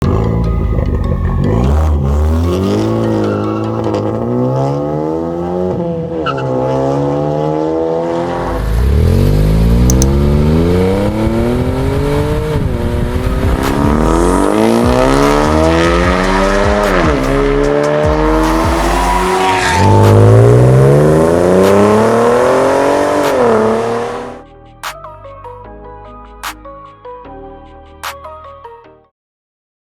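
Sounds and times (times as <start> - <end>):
car engine accelerating hard: 0.0 - 24.4.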